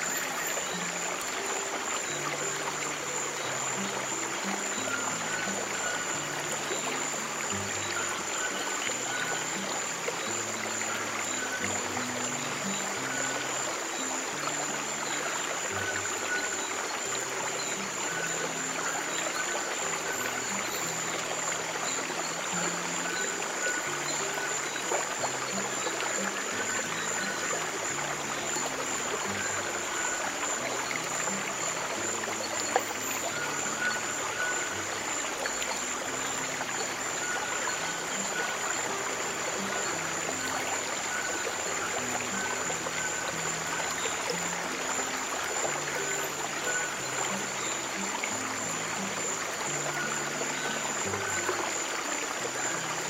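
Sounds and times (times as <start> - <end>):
stream water trickling: 0.0 - 53.0.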